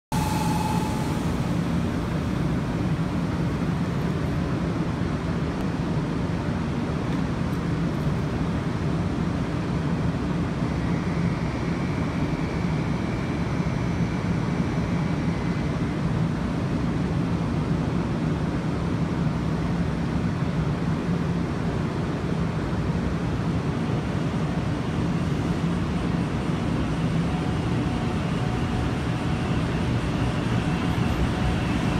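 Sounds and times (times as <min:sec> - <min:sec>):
faint high tone: 0:00.1 - 0:01.9
train equipment hum: 0:00.1 - 0:05.6, 0:21.9 - 0:31.9.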